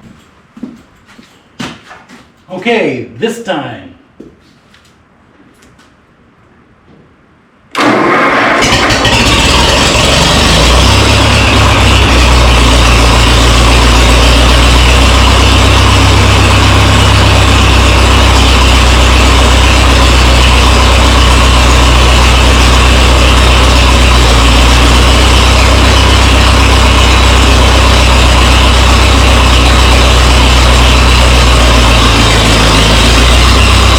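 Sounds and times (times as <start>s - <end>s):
tractor engine running: 7.8s - 33.9s.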